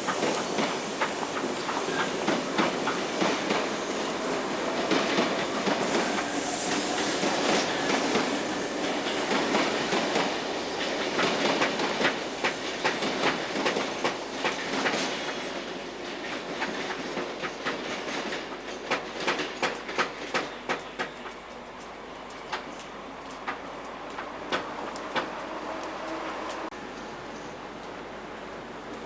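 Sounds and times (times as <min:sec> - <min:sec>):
electric train rumbling: 0:00.0 - 0:29.0
wheels clicking over rail joints: 0:07.3 - 0:26.8.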